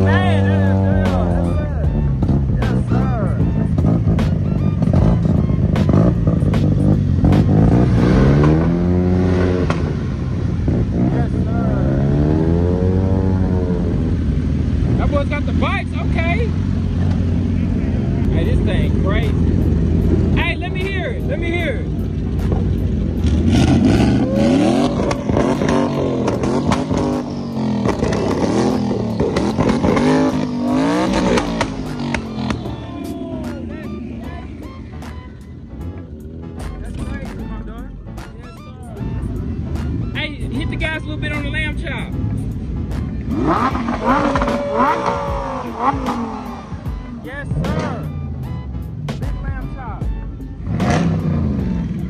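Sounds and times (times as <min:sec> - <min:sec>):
engine revving up: 0:00.0 - 0:20.8, 0:22.4 - 0:37.4, 0:39.4 - 0:48.6, 0:50.6 - 0:52.0
exhaust pops: 0:03.8 - 0:10.0, 0:22.2 - 0:32.8.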